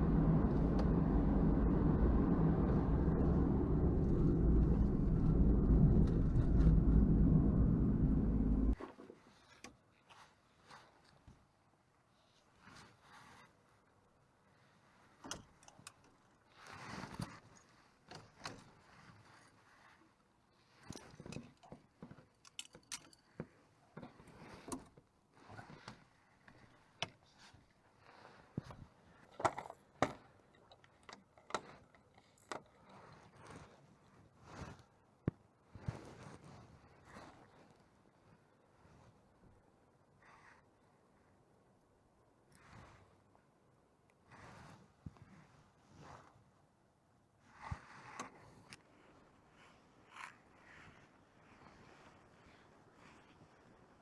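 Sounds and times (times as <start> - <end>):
road noise: 0.0 - 8.8
van engine rumbling: 0.0 - 8.8.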